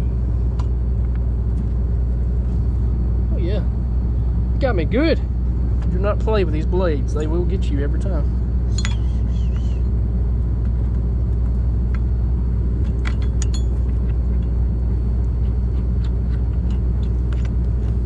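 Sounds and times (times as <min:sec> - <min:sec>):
engine humming: 0:00.0 - 0:18.0
metallic clicks and clinks: 0:13.0 - 0:13.9.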